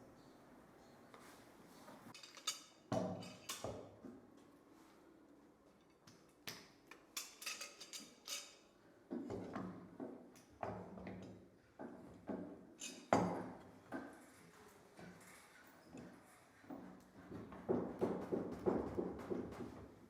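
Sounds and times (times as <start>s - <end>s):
wood and tools knocking: 16.7s - 20.0s.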